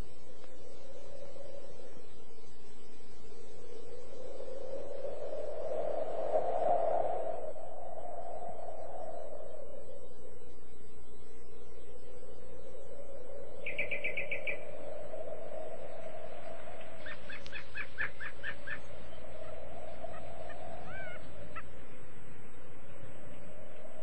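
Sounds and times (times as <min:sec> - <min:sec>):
low wavering hum: 0:00.0 - 0:24.0
short gliding whistles: 0:00.0 - 0:24.0
birds chirping: 0:13.6 - 0:14.8.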